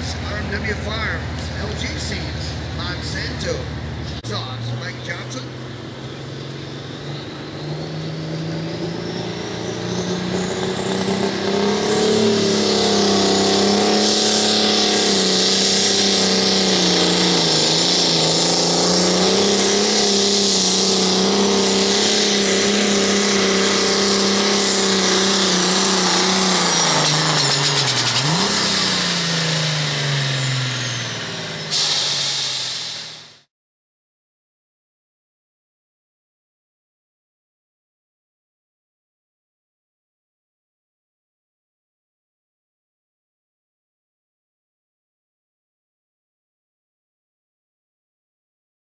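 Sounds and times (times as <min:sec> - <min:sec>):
diesel tractor engine at full throttle: 0:00.0 - 0:33.5
high turbo whistle: 0:08.3 - 0:33.5.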